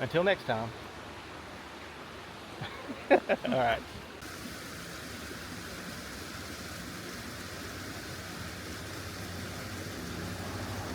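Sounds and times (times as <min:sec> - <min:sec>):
vehicle running hum and hiss: 0:04.2 - 0:10.9.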